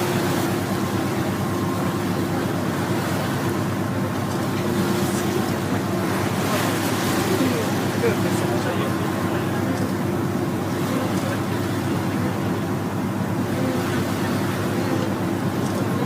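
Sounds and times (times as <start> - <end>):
boat engine droning: 0.0 - 16.0
rushing water: 0.0 - 16.0.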